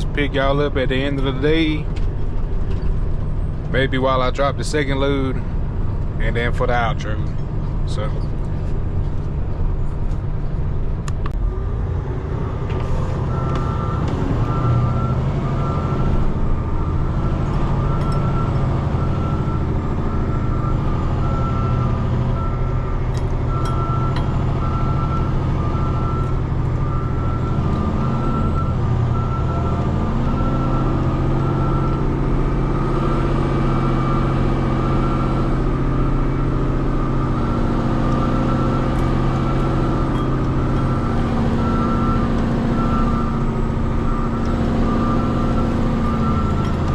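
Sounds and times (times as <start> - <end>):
diesel truck engine running: 0.0 - 46.9
reversing alarm beeping: 13.3 - 46.9.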